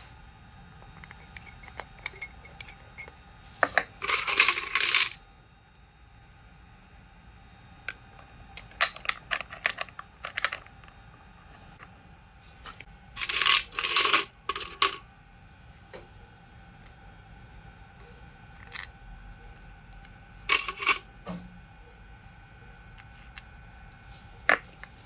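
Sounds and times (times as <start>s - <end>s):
metal tools clinking: 4.0s - 5.2s, 13.2s - 15.0s, 20.5s - 21.0s.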